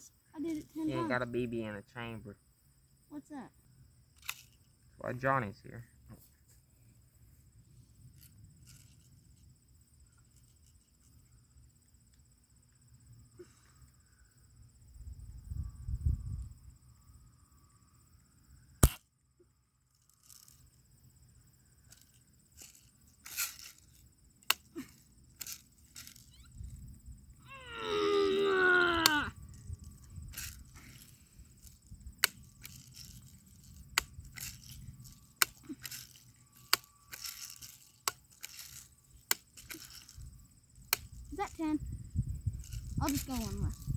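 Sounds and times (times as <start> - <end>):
crickets chirring: 0.0 - 43.9
bb gun firing crack: 18.8 - 19.1.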